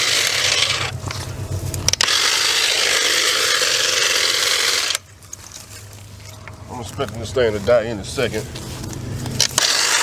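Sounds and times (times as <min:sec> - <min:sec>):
cordless saw cutting brush: 0:00.0 - 0:01.1, 0:01.9 - 0:05.0, 0:09.4 - 0:10.0.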